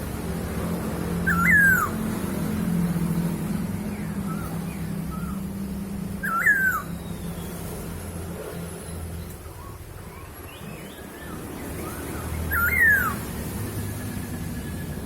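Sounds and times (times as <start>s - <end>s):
bird whistling swooping notes: 1.2s - 2.0s, 6.2s - 7.5s, 9.6s - 13.3s.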